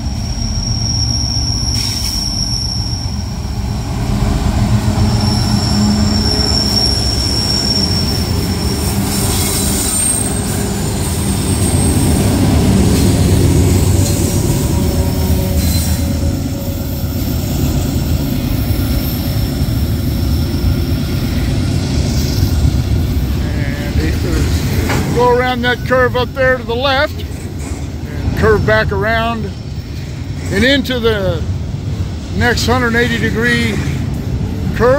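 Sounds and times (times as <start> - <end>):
wheel squeal: 0.0 - 3.5, 4.8 - 12.2, 15.2 - 16.3
freight train rumbling past: 0.0 - 34.9.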